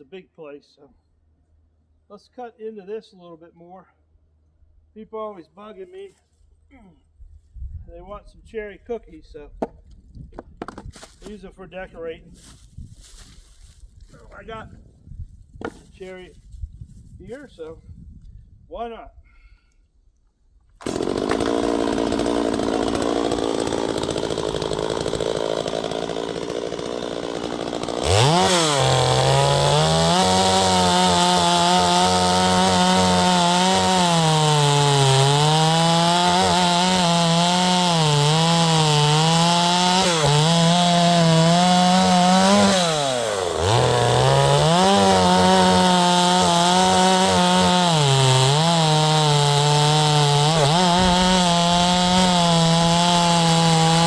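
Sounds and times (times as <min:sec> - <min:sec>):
chainsaw cutting wood: 0:20.8 - 0:54.0.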